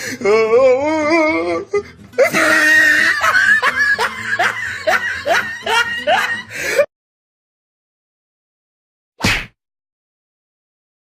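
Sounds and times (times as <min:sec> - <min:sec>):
burst of laughter: 0:02.2 - 0:06.8.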